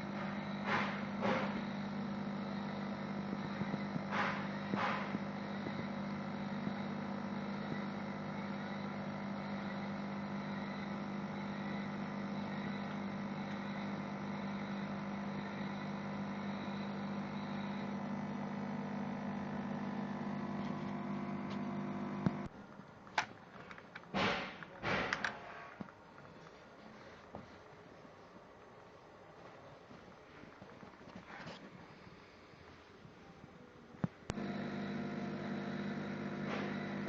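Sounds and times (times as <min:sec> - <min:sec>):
welding machine humming: 0:00.0 - 0:22.5, 0:34.3 - 0:37.0.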